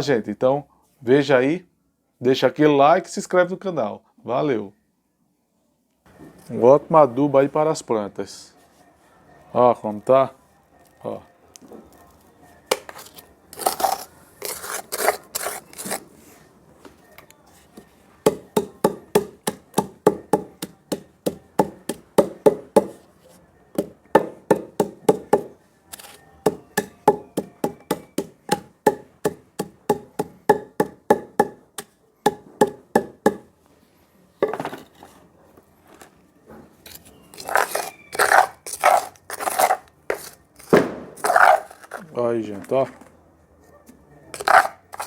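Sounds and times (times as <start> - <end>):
wood pounding charcoal: 12.7 - 16.0, 18.2 - 23.0, 23.7 - 33.5, 37.2 - 42.0, 44.4 - 45.0.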